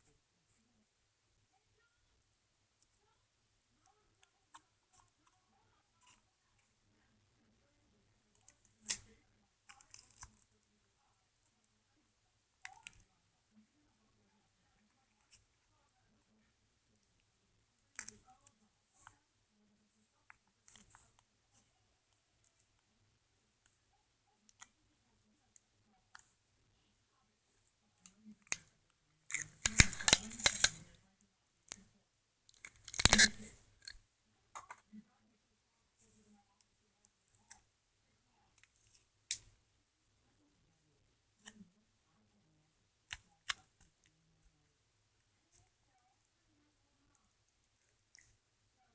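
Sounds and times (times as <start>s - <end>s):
tape being torn: 29.3s - 31.0s, 32.6s - 34.0s.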